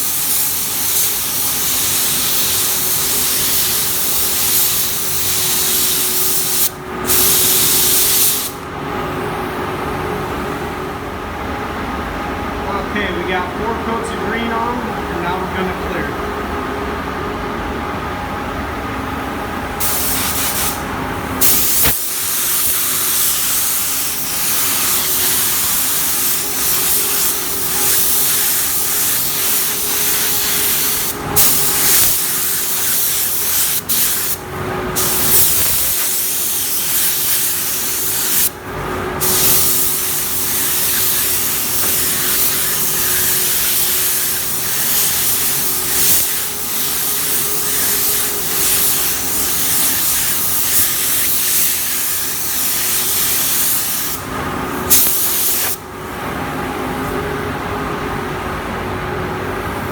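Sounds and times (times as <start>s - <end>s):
spray gun hissing: 0.0s - 8.6s, 19.8s - 20.8s, 21.4s - 38.6s, 39.2s - 54.2s, 54.9s - 55.8s.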